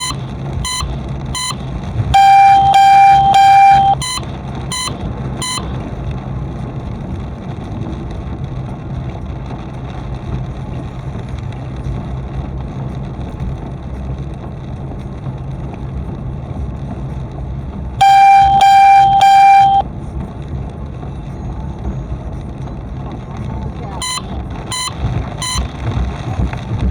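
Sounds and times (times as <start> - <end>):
vehicle horn honking: 0.0 - 5.8, 18.0 - 19.8, 24.0 - 25.7
car engine and road noise: 0.0 - 26.9.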